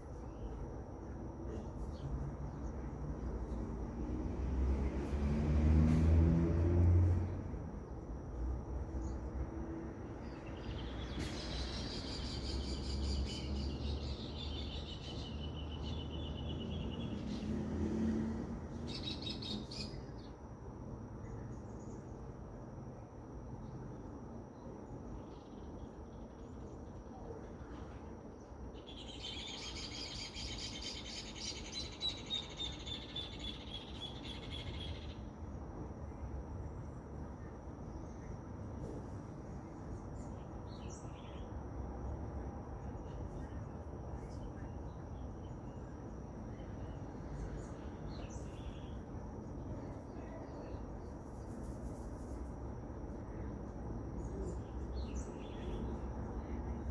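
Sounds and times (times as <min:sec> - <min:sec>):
birds singing: 0:10.2 - 0:17.7, 0:18.7 - 0:20.4, 0:28.3 - 0:35.3, 0:39.6 - 0:41.6, 0:42.9 - 0:51.6, 0:54.2 - 0:56.9.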